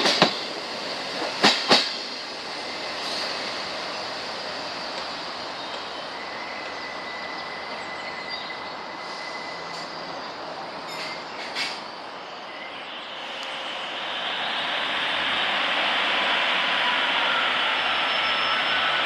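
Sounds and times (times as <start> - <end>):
sharp knocks of train: 0.0 - 2.2
train rumbling: 0.0 - 19.0
high wheel squeal: 1.8 - 19.0.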